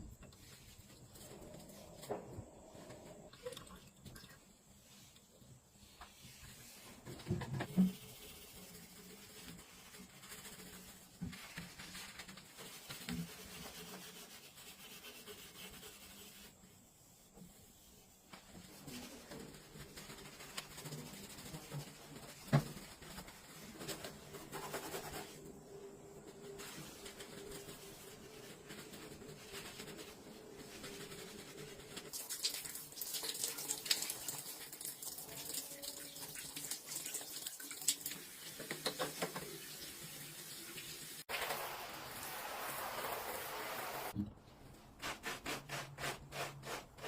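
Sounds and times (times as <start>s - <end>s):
water running at sink: 26.4s - 44.2s.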